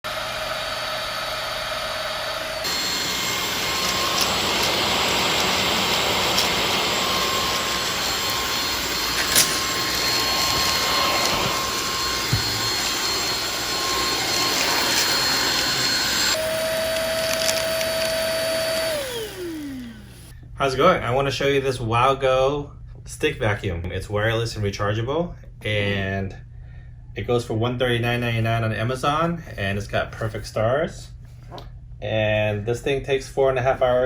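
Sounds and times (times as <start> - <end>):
vacuum motor whirring: 0.1 - 20.3.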